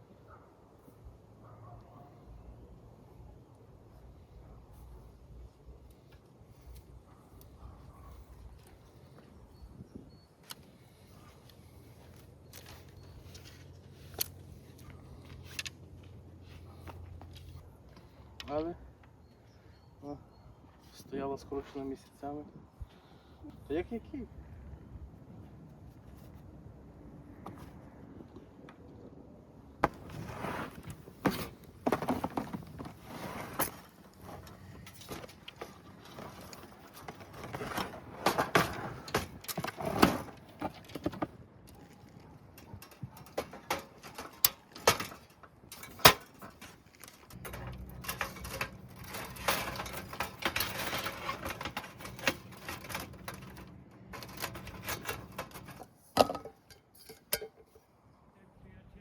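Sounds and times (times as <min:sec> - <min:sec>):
objects being handled: 0:29.8 - 0:57.9.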